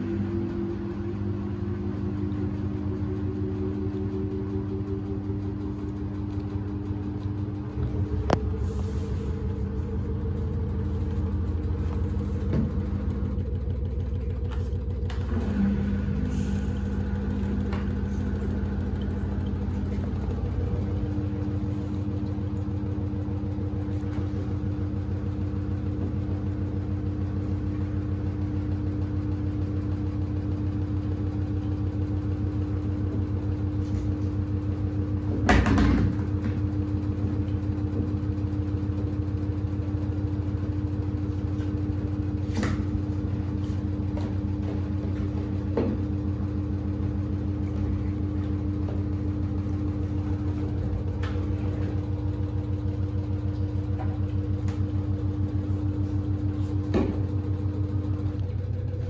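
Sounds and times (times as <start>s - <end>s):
washing machine humming: 0.0s - 59.0s
washing machine thump: 35.4s - 36.7s, 56.8s - 57.5s.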